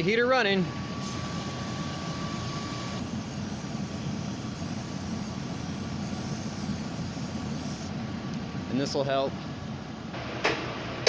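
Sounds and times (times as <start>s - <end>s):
faint high whine: 0.0s - 8.0s
heater blower fan whooshing: 0.0s - 11.0s.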